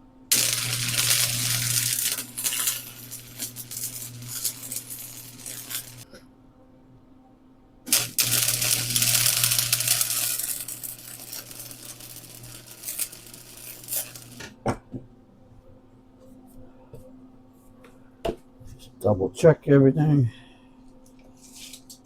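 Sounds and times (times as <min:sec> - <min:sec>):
arc welding crackling and hissing: 0:00.3 - 0:06.1, 0:07.9 - 0:14.6.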